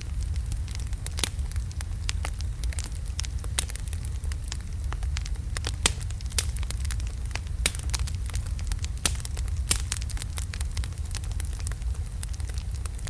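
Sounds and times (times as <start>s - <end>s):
logs crackling and popping: 0.0s - 13.0s
low rumble of flames: 0.0s - 13.0s.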